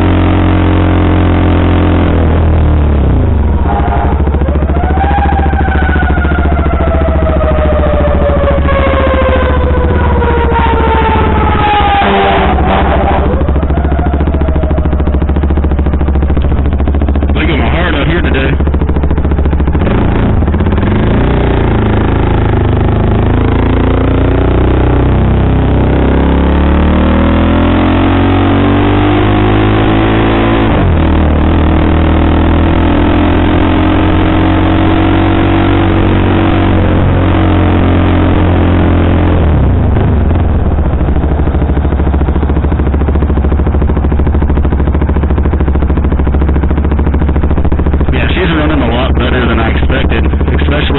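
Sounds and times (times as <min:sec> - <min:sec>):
motorcycle engine revving through gears: 0:00.0 - 0:50.9.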